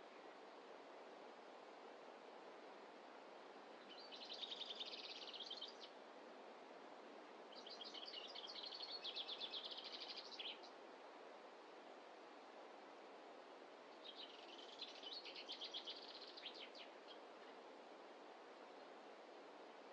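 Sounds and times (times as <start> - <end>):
faint steady hiss: 0.0 - 19.9.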